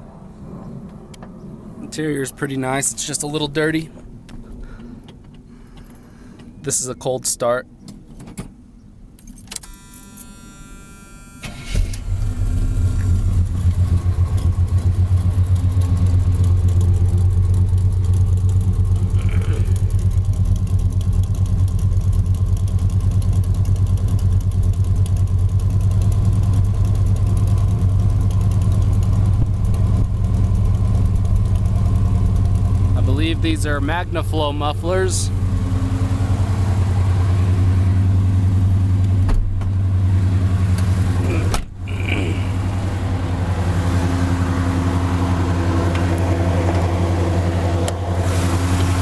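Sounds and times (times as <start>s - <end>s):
engine starter cranking: 11.4s - 14.6s
truck engine idling: 11.5s - 49.0s.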